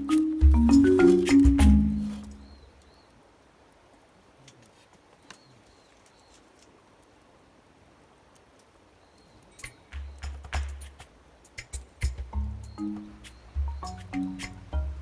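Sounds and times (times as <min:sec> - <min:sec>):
marimba-like background music: 0:00.0 - 0:02.6, 0:12.1 - 0:15.0
faint high bird calls: 0:02.0 - 0:03.2, 0:05.1 - 0:06.6.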